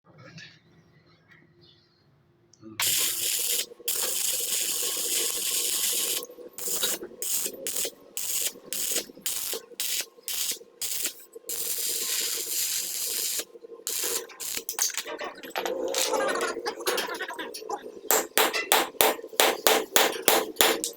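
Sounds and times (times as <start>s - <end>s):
air ratchet tool running: 2.8s - 14.8s.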